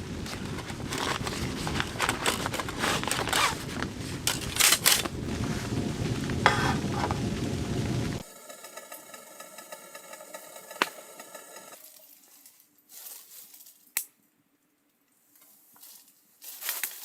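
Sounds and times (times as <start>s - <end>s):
steady low noise: 0.0s - 11.8s.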